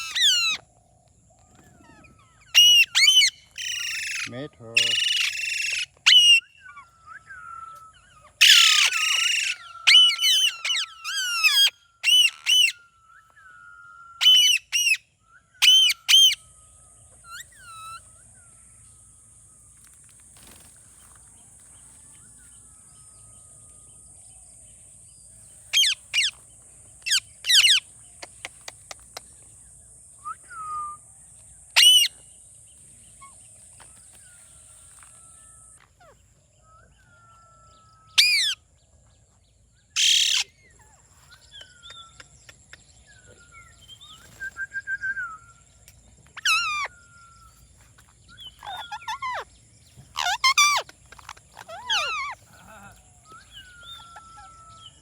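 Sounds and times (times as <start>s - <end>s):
parakeet screeching and squawking: 0.0s - 0.6s, 1.9s - 6.4s, 8.4s - 12.7s, 27.1s - 27.8s, 31.8s - 32.1s, 38.2s - 38.6s, 40.0s - 40.4s, 46.4s - 46.9s, 48.6s - 49.4s, 50.0s - 52.5s.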